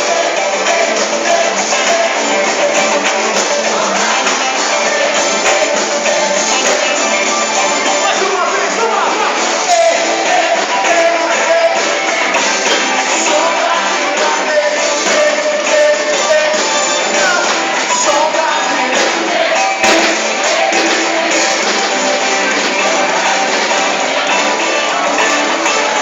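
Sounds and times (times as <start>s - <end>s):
live band playing: 0.0s - 26.0s
person singing: 0.0s - 26.0s.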